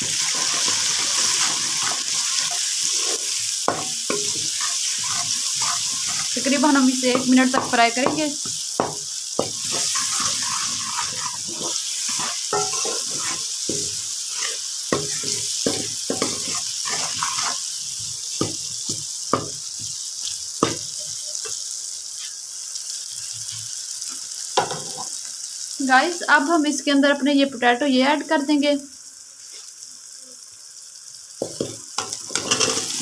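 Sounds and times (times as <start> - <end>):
masala sizzling in oil: 0.0 - 33.0
metal spoon scraping a pot: 4.1 - 6.6, 9.7 - 13.5, 16.2 - 17.6, 32.3 - 33.0.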